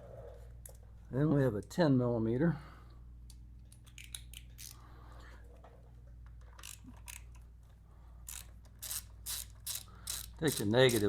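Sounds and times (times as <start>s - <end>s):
ratchet clicking: 4.0s - 4.8s, 6.6s - 7.4s, 8.3s - 11.0s.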